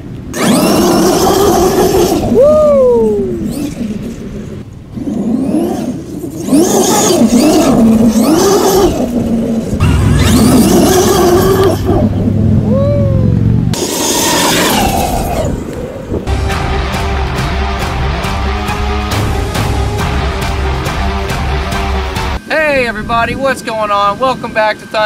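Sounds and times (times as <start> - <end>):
electric motor whining: 0.3 - 16.4.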